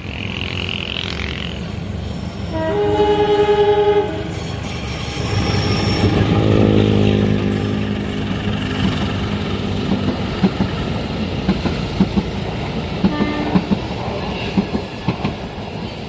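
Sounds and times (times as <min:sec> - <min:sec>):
train wheels clickety-clack: 0:04.3 - 0:16.0.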